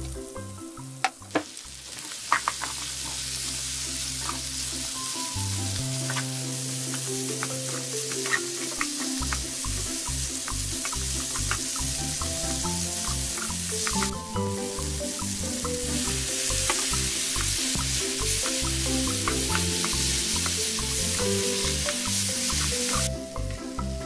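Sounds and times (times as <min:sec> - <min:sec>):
food sizzling in frying pan: 0:00.0 - 0:23.1
spatula tapping and scraping pan: 0:06.9 - 0:09.4, 0:15.1 - 0:23.0.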